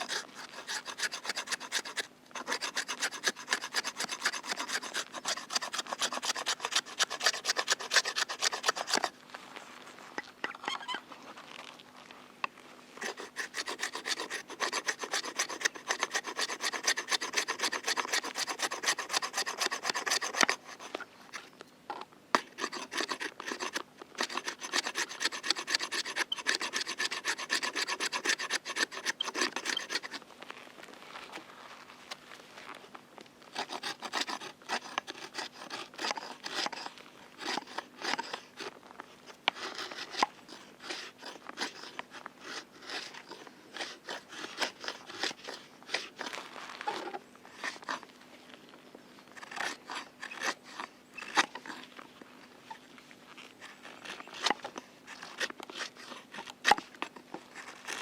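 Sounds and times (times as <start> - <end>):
rasping scraping strokes: 0.0 - 9.1, 13.0 - 21.5, 22.4 - 30.2, 33.5 - 38.8, 39.5 - 48.1, 49.4 - 52.0.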